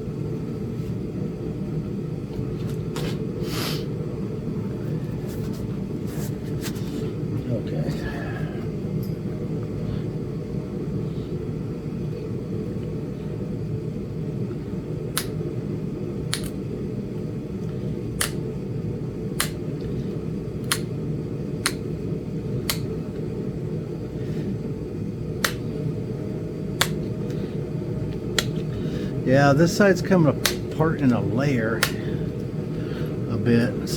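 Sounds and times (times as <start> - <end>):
stone knapping clicks: 15.1 - 15.4, 16.3 - 16.6, 18.2 - 18.4, 19.4 - 19.6, 20.6 - 20.9, 21.6 - 21.9, 22.6 - 22.9, 25.4 - 25.7, 26.8 - 27.4, 28.1 - 28.8, 30.4 - 30.8, 31.8 - 32.5.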